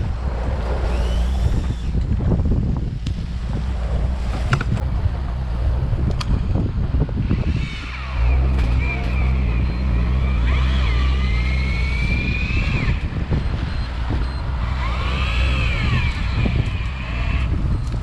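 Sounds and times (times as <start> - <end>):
boat engine running: 0.0 - 18.0
high wavering whine: 0.0 - 18.0.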